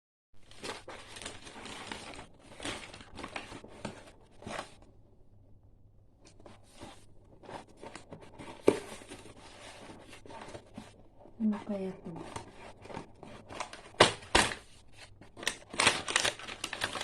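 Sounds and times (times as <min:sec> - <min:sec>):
packaging tearing and rustling: 0:00.4 - 0:04.9, 0:12.1 - 0:17.0.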